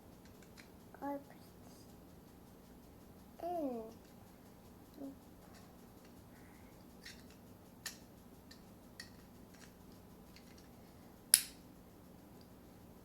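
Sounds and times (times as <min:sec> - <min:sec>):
plastic toy parts clicking: 0:07.0 - 0:10.7, 0:11.3 - 0:11.6.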